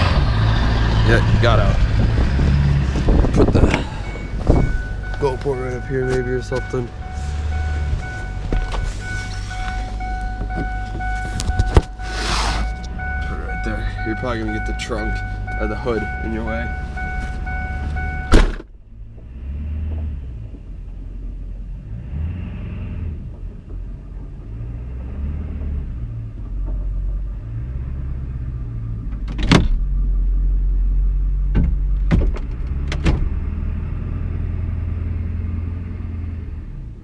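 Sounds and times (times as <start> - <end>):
diesel engine idling: 0.0 - 19.2.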